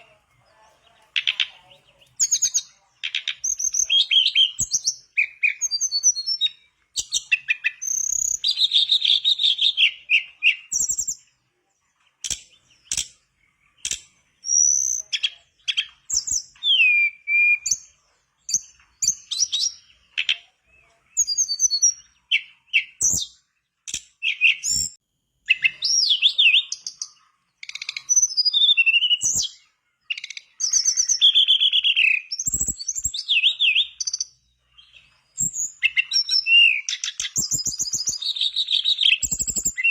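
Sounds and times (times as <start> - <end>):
songbird singing: 0.0 - 39.9
sharp clicks: 12.2 - 13.2, 13.8 - 14.2, 23.8 - 24.2.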